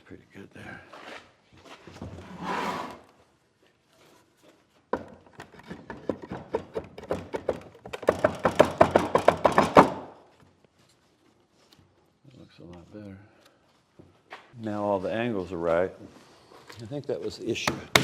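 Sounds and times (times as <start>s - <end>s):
sharp knocks on wood: 5.0s - 10.1s, 17.6s - 18.0s.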